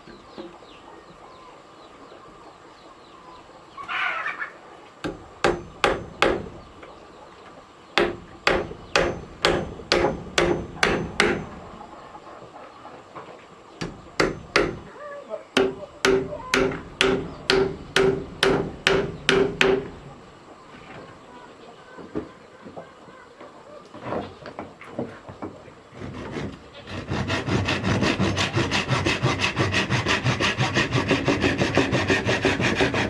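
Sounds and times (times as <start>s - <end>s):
hammer blows: 5.0s - 6.7s, 8.0s - 11.8s, 13.8s - 15.0s, 15.6s - 20.3s.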